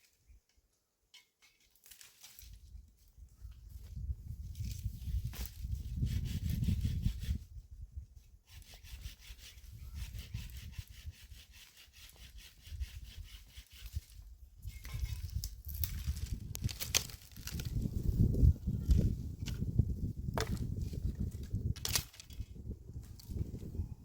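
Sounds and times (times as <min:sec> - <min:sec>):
hand saw cutting wood: 0:05.3 - 0:07.4, 0:08.5 - 0:15.3.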